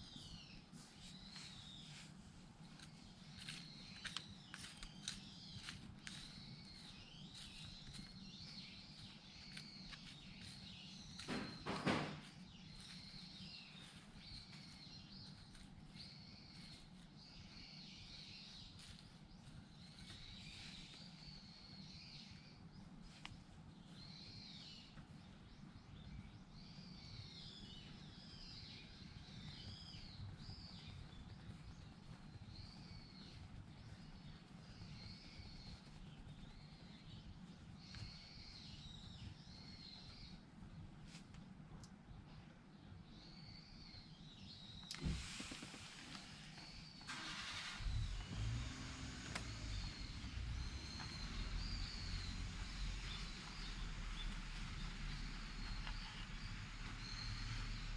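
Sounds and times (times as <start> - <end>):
birds chirping: 0.0 - 57.9
rustling crunch: 0.1 - 17.5
birds calling: 43.2 - 57.9.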